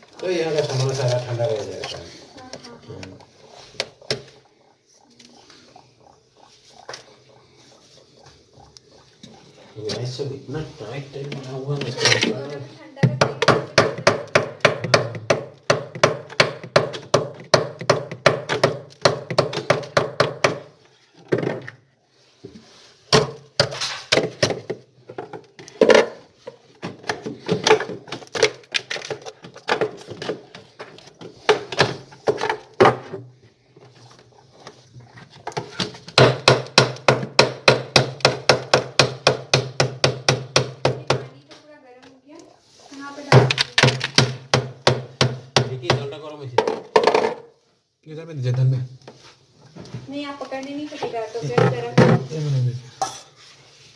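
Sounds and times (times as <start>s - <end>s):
knocking ice in freezer: 13.0s - 20.7s, 35.5s - 41.3s, 43.3s - 47.4s.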